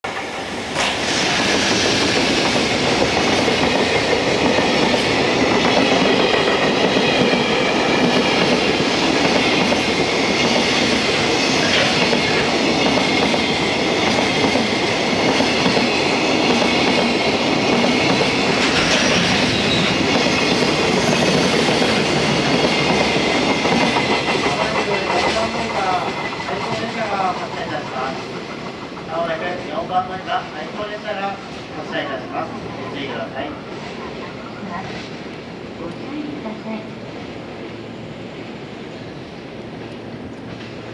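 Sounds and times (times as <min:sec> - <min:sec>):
freight train rumble: 0:00.0 - 0:40.9
wheels clacking over rail joints: 0:00.8 - 0:29.8.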